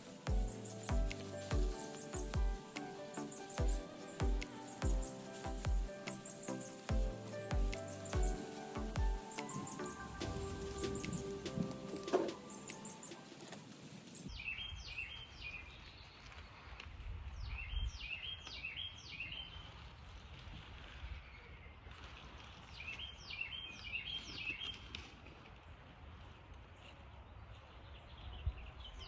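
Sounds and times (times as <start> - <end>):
music: 0.0 - 13.7.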